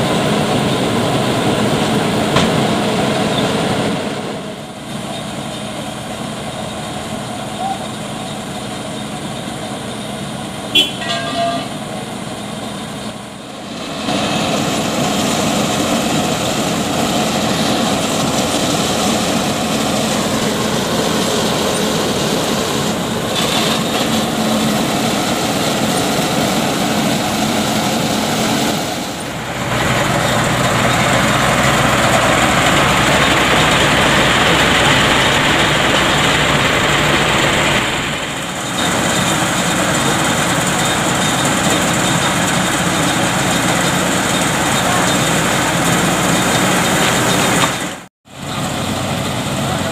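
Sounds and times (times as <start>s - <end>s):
heavy truck engines running: 0.0s - 49.9s
road traffic noise: 0.0s - 49.9s
short horn toot: 10.7s - 11.8s.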